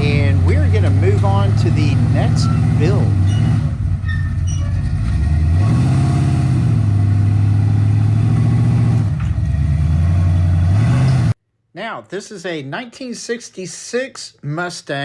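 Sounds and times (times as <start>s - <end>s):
pickup truck engine under load: 0.0s - 11.4s.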